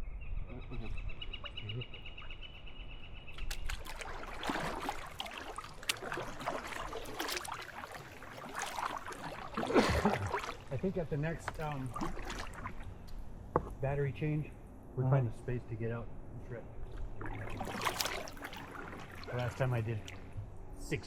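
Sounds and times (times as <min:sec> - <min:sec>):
kayak paddle splashing water: 0:03.4 - 0:13.6, 0:16.9 - 0:20.5.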